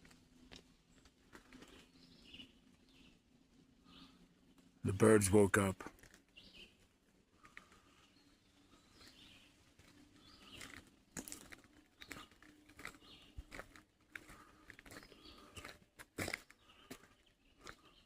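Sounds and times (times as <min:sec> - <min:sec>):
distant birds chirping: 0:01.6 - 0:18.0
light ticks and crunches: 0:07.4 - 0:07.8, 0:09.8 - 0:17.9.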